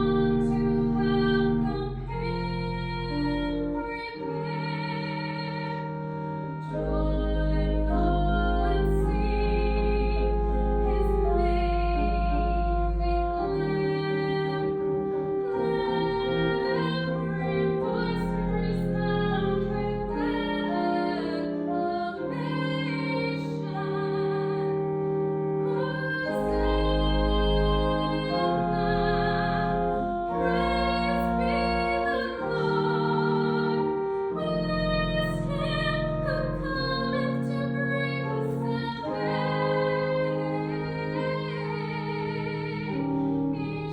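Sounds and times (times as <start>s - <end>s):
sustained instrumental accompaniment: 0.0s - 43.9s
woman singing sacred song: 25.7s - 43.9s.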